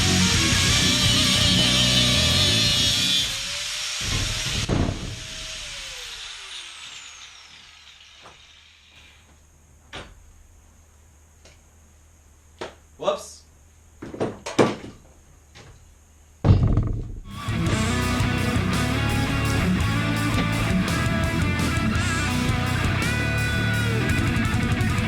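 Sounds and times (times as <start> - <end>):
rock music: 0.0 - 3.1, 17.3 - 25.0
power tool whining: 0.0 - 9.4, 17.3 - 25.0.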